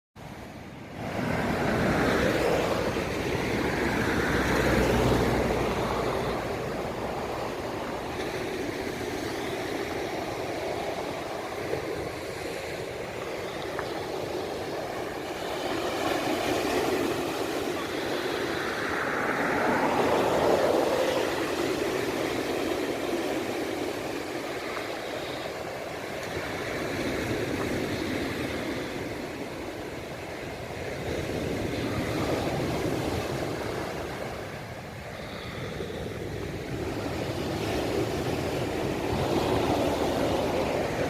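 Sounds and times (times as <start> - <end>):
waves breaking on a beach: 0.2 - 41.0.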